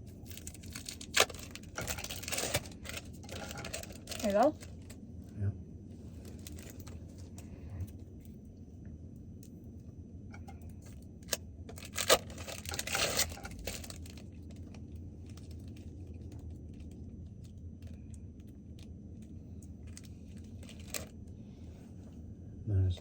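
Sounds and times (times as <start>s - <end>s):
steady low hum: 0.0s - 23.0s
plastic wrapping crinkling: 0.2s - 5.0s, 11.2s - 21.2s.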